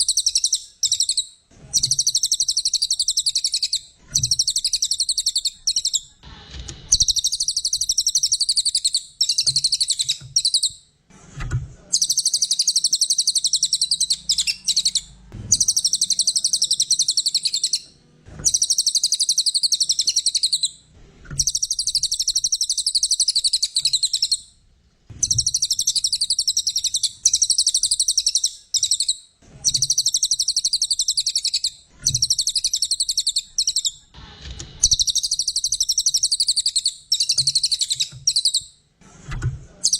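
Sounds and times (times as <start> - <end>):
songbird high chattering trill: 0.0 - 6.2, 12.0 - 17.8, 18.5 - 20.7, 25.2 - 34.0, 34.8 - 38.6.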